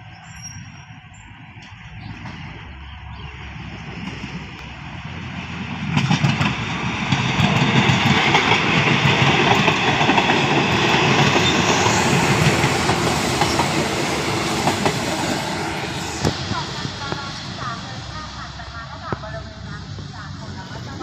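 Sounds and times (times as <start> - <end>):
train rumble: 0.0 - 21.0
train wheels clacking over rail joints: 5.9 - 15.2.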